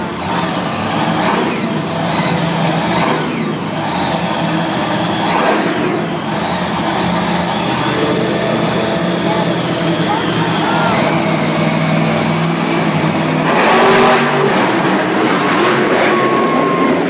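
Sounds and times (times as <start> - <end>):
monster truck engines revving: 0.0 - 17.0.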